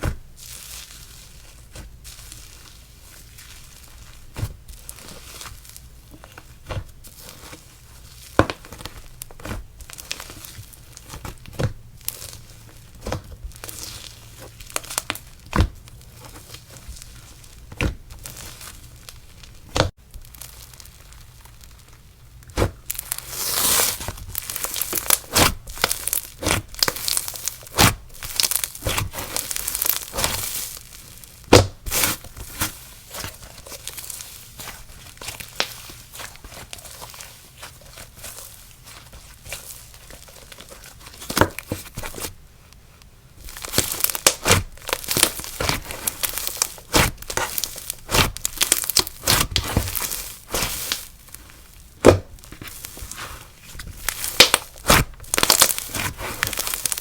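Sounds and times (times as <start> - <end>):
slime sticky pops and crackling: 21.5 - 37.0, 43.5 - 57.0.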